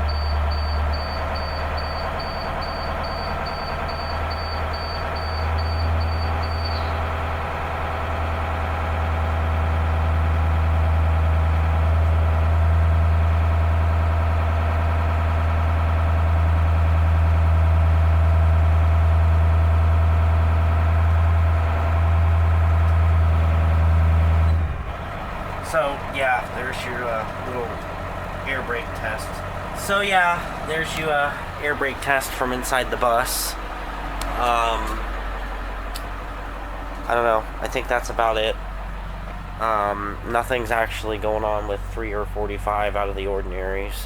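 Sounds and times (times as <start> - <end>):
high-pitched warning beeps: 0.0 - 7.0
diesel bus engine idling: 0.0 - 44.0.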